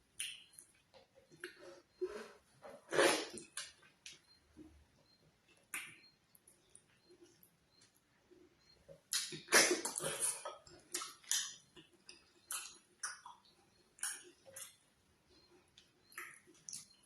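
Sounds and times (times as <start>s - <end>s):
wet mouth eating sounds: 9.1s - 14.8s, 15.8s - 17.0s.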